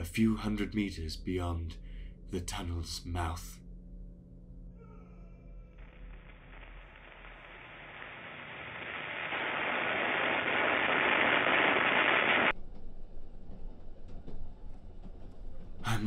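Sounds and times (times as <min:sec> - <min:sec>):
rushing noise effect: 0:05.8 - 0:12.5.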